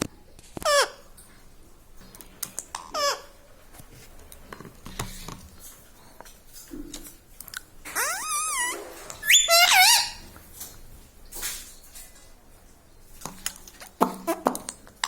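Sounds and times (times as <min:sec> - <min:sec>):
parrot high call: 0:08.0 - 0:10.2.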